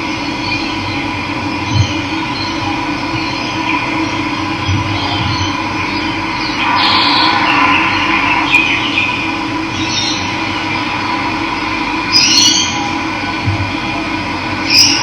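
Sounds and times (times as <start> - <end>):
water rushing: 6.6 - 12.2.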